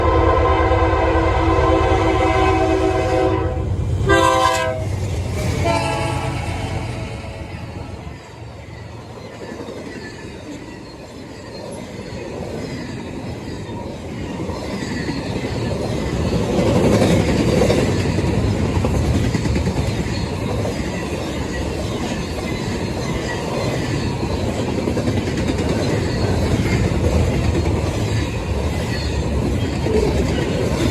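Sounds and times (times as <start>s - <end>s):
train rumbling past: 0.0s - 30.9s.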